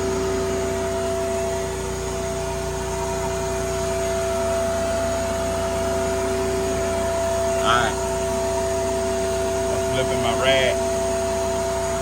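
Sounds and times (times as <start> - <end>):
motor droning with whine: 0.0 - 12.0.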